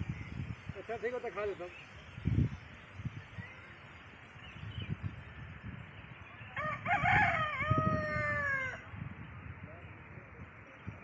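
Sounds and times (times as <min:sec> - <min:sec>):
rooster crowing: 0:06.5 - 0:08.9.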